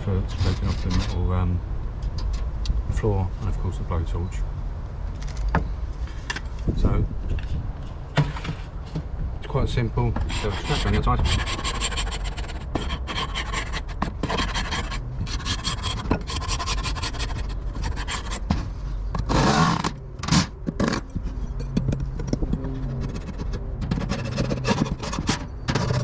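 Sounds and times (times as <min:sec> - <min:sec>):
scraper scraping wood: 0:00.3 - 0:01.2, 0:10.2 - 0:21.4, 0:22.1 - 0:26.0.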